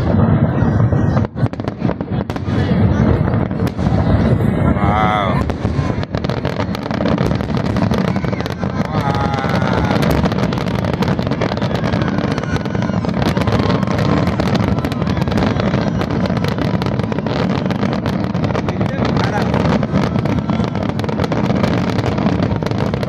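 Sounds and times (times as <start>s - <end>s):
low rumble: 0.0s - 7.8s
fireworks crackling pops: 0.0s - 23.0s.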